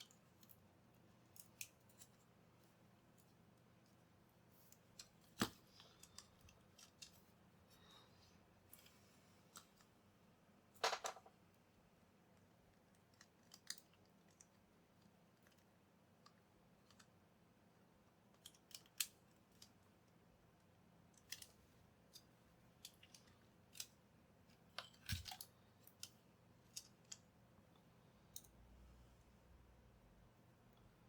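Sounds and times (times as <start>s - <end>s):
small clicks and taps of tools: 4.6s - 7.2s, 12.8s - 17.2s, 18.3s - 19.8s, 21.1s - 28.6s.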